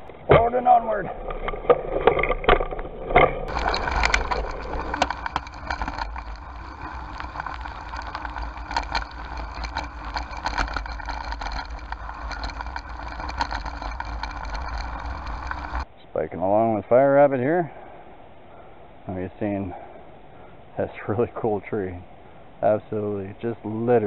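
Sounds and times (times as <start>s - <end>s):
low tyre rumble on dirt: 0.0s - 17.8s, 18.5s - 24.0s
bicycle clicks and rattles: 1.4s - 15.9s.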